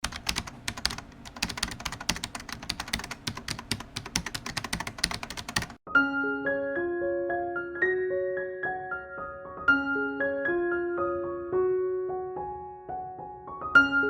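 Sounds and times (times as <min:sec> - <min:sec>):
rapid keyboard typing: 0:00.0 - 0:05.8
piano music: 0:00.1 - 0:14.0.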